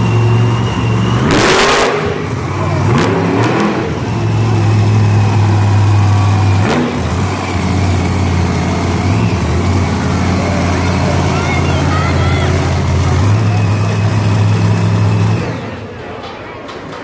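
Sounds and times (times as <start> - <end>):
monster truck engines revving: 0.0 - 17.0.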